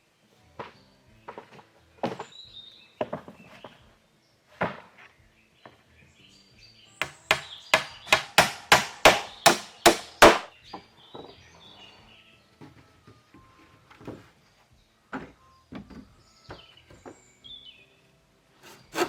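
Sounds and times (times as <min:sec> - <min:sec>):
hand tool striking wood: 0:07.0 - 0:10.5, 0:18.6 - 0:19.0.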